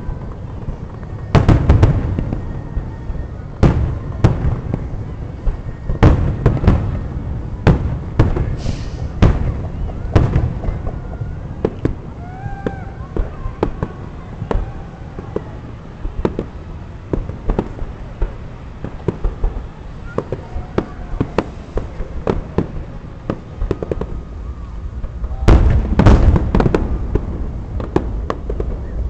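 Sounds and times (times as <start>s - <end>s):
fireworks bangs and pops: 0.0s - 24.3s, 25.0s - 29.0s.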